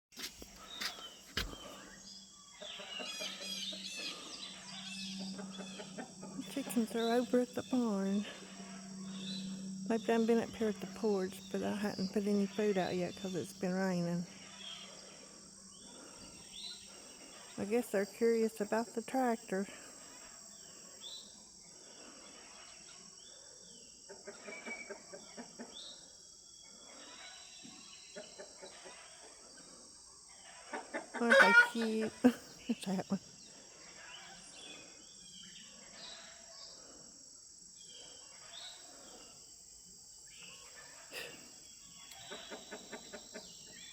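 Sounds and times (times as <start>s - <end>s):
birds chirping: 0.1s - 29.8s, 31.2s - 37.0s
high-pitched insect drone: 0.2s - 43.9s
bird chirps: 0.5s - 17.8s
chickens clucking: 2.5s - 8.9s, 30.3s - 32.3s, 42.1s - 43.6s.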